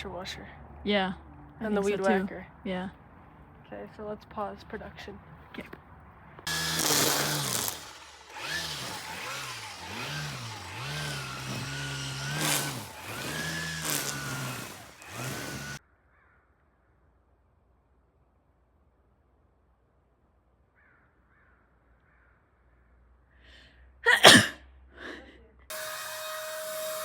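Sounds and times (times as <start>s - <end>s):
engine revving: 6.5s - 15.8s, 25.7s - 27.0s.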